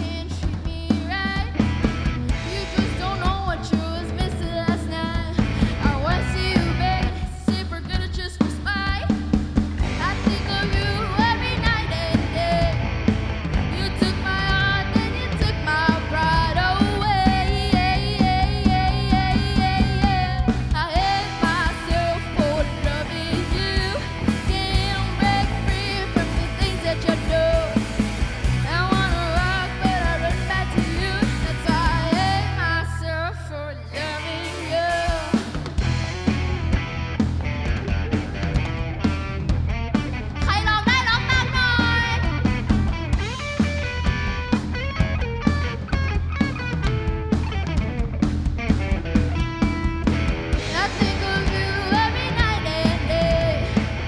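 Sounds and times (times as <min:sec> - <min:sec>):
bass guitar: 0:00.0 - 0:54.0
rock band playing: 0:00.0 - 0:54.0
person singing: 0:13.6 - 0:27.9, 0:28.6 - 0:35.7, 0:50.7 - 0:53.9
drum beat: 0:35.0 - 0:54.0.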